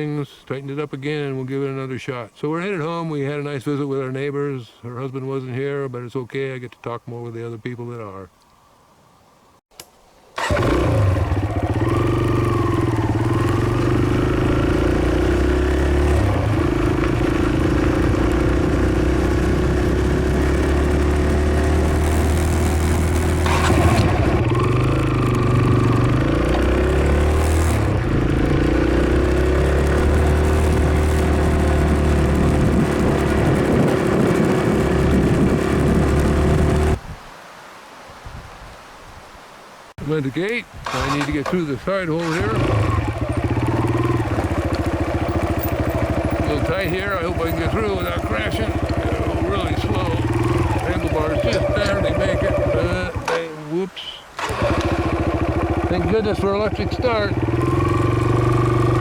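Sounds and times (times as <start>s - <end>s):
dirt bike engine running: 10.4s - 37.0s, 40.8s - 53.6s, 54.4s - 59.0s.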